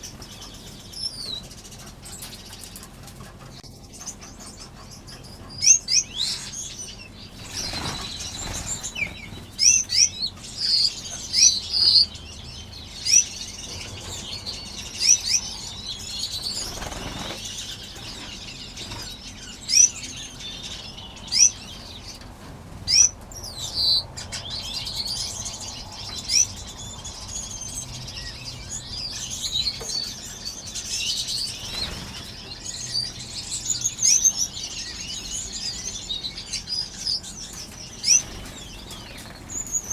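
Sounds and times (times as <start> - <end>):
finches chirping: 0.0 - 39.9
wings fluttering: 7.2 - 11.4, 13.6 - 20.8, 31.3 - 32.8, 37.5 - 39.9.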